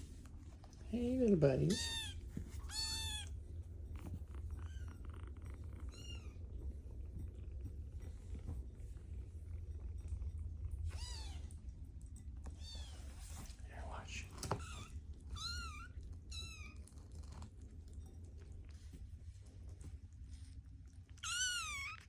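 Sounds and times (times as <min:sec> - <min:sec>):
kittens mewing: 0:01.8 - 0:03.3.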